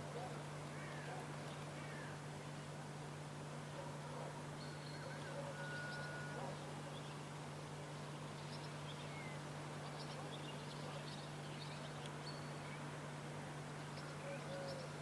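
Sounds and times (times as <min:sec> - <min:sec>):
faint bird chirps and whistles: 0:04.6 - 0:07.2.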